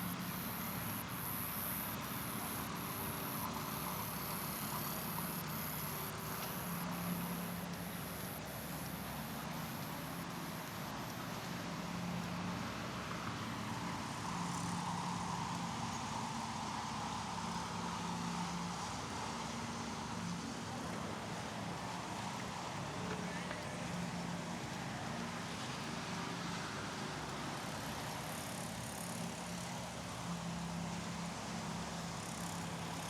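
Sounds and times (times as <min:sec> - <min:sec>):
cars passing: 0:00.0 - 0:12.5.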